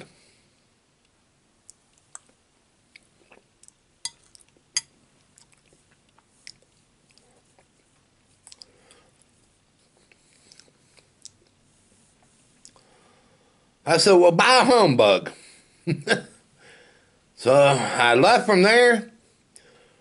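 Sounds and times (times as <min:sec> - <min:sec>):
man chewing: 0:01.6 - 0:11.6, 0:12.2 - 0:13.0
sharp mouth clicks: 0:08.4 - 0:08.7.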